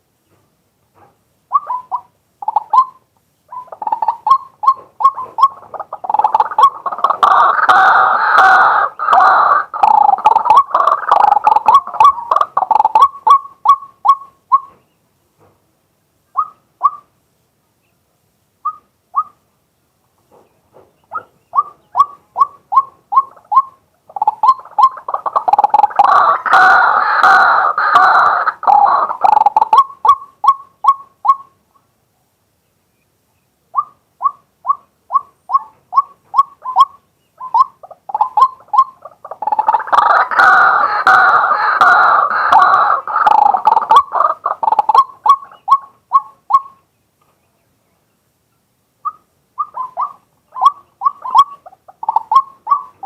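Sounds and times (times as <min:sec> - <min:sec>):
waterhen calling: 0:01.5 - 0:15.0, 0:16.3 - 0:17.1, 0:18.6 - 0:19.4, 0:20.4 - 0:31.8, 0:33.7 - 0:47.5, 0:48.5 - 0:53.0.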